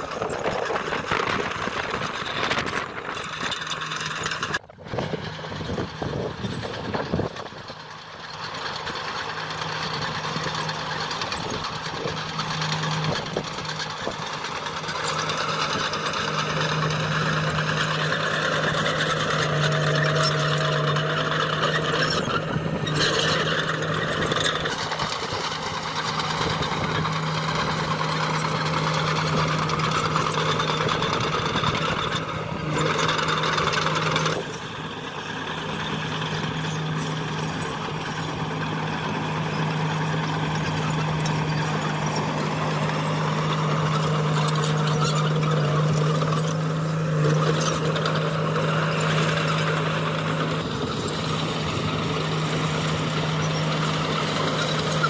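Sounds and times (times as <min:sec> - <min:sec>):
diesel engine drone: 0:00.0 - 0:55.0
rough mechanical noise: 0:00.0 - 0:55.0.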